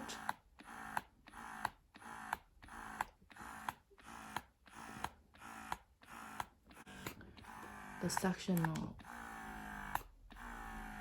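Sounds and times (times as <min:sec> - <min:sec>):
breast pump motor humming: 0:00.0 - 0:11.0
pump clicks: 0:04.4 - 0:09.2.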